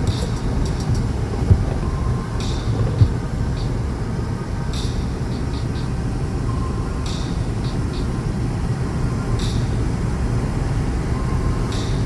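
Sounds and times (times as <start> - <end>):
vehicle engine rumbling: 0.0 - 7.1.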